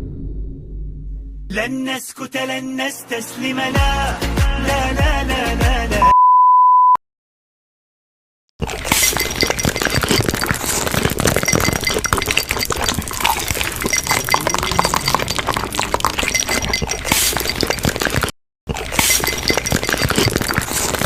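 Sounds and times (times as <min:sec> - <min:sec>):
glass clattering and clinking: 0:08.8 - 0:18.3, 0:19.0 - 0:21.0.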